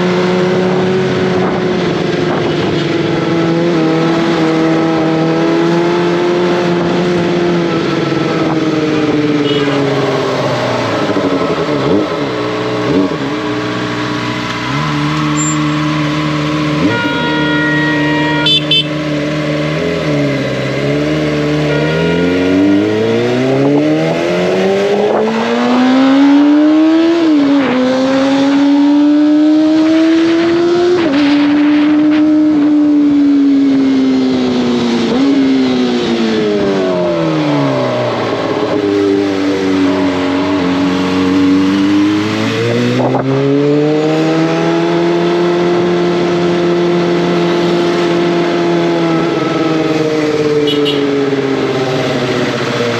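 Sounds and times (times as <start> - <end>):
motorcycle engine accelerating: 0.0 - 52.9.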